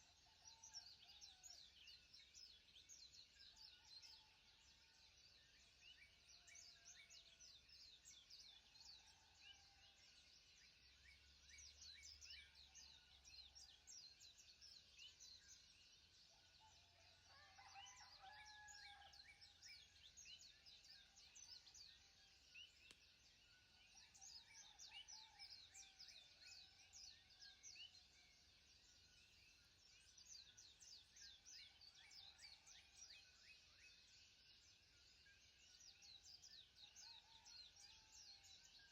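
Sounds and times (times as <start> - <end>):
small birds chirping: 0.0 - 2.7, 17.7 - 33.4.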